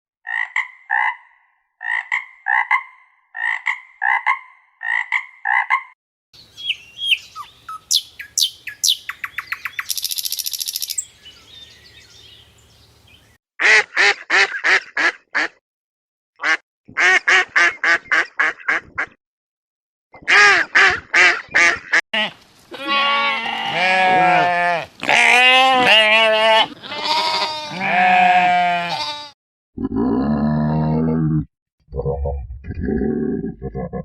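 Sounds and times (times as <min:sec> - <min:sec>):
rapid quack-like calls: 0:13.6 - 0:15.6, 0:16.4 - 0:19.2, 0:20.2 - 0:22.3
long wavering bleats: 0:22.2 - 0:31.1
low deep animal call: 0:29.8 - 0:34.0.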